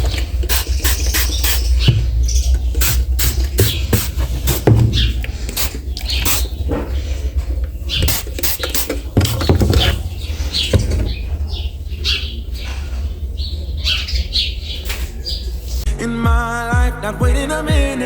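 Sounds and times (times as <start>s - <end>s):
instrumental music with steady bass: 15.9s - 18.0s.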